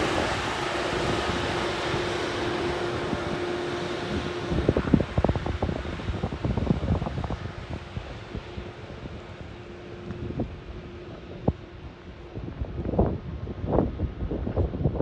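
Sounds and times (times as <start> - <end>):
jet engines humming: 0.0 - 15.0
wind buffeting microphone: 0.0 - 15.0.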